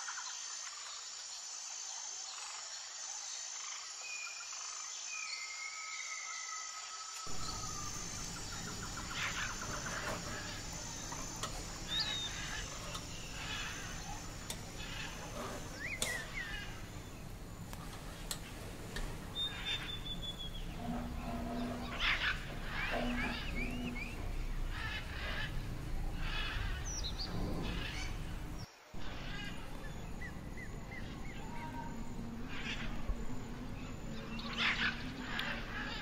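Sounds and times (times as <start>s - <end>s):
steady background hiss: 0.0s - 36.0s
birds chirping and calling: 7.3s - 36.0s.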